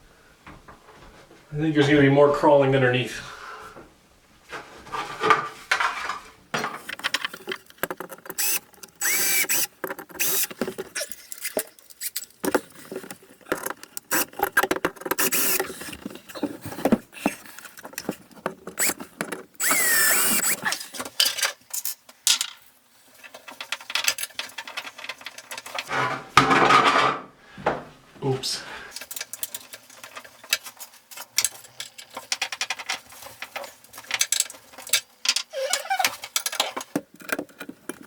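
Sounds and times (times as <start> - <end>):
clicks and scraping of hardware: 4.9 - 22.6, 28.9 - 38.0.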